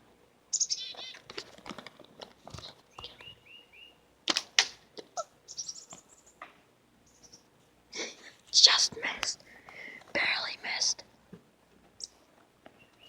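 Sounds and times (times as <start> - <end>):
small birds chirping: 0.5 - 1.8, 2.4 - 4.0, 5.0 - 6.4, 7.0 - 7.5, 12.0 - 13.0.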